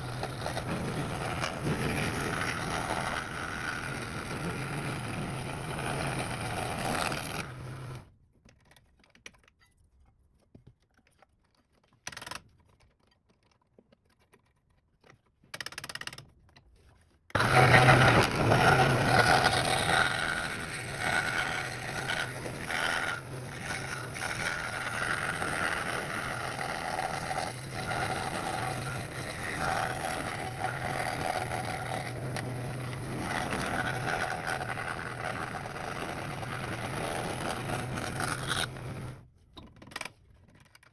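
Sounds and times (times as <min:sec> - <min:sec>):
woodworking power tool running: 0:00.0 - 0:08.0, 0:17.4 - 0:39.2.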